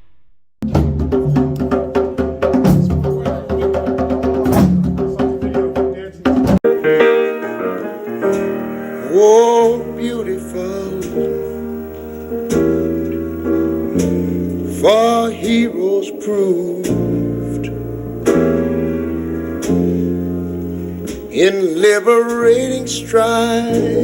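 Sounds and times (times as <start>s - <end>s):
piano with drums and percussion: 0.6s - 24.0s
piano with singing voice: 6.6s - 24.0s.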